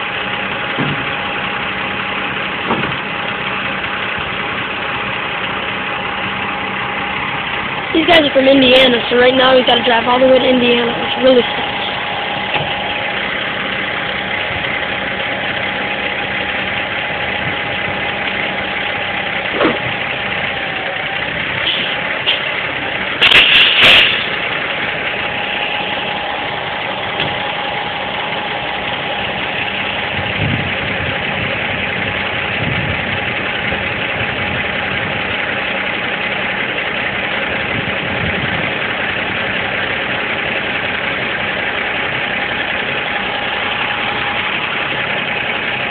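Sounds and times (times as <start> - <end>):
diesel engine idling: 0.0 - 45.9
loud sharp bangs: 23.2 - 24.5.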